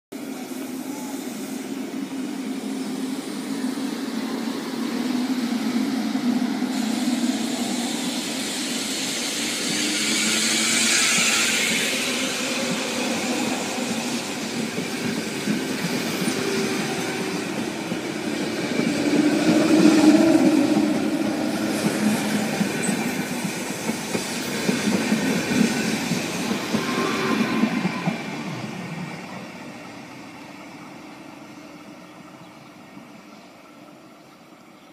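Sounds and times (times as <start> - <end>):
electric train humming: 0.2 - 34.9
wheels rattling on rails: 5.0 - 29.7.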